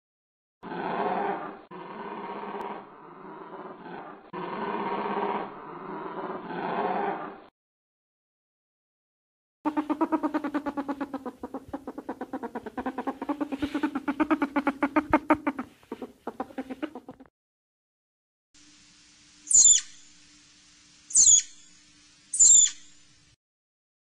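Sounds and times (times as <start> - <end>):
rapid pulsed animal call: 9.7 - 17.3, 19.4 - 20.2, 21.1 - 23.0
high-pitched downward calls: 19.4 - 20.1, 21.1 - 21.7, 22.4 - 22.8.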